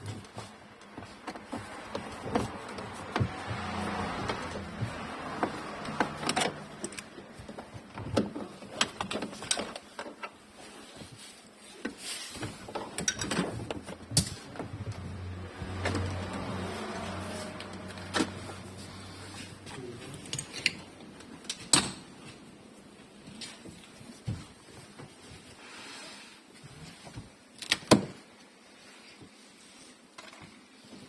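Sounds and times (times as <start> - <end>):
hand tools clicking and rattling: 12.8 - 14.6, 20.1 - 22.1.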